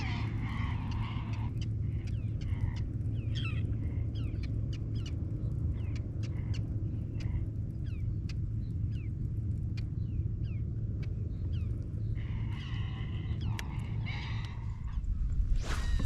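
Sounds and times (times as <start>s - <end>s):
birds chirping: 0.0s - 16.0s
low rumble: 0.0s - 16.0s.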